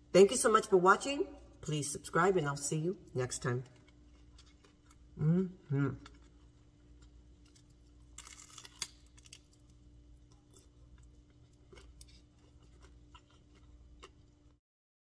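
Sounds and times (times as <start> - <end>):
low steady hum: 0.0 - 14.6
quiet chewing with clicks: 3.7 - 5.1, 5.9 - 7.9, 9.2 - 14.5
crunching bite of fried food: 5.9 - 14.6.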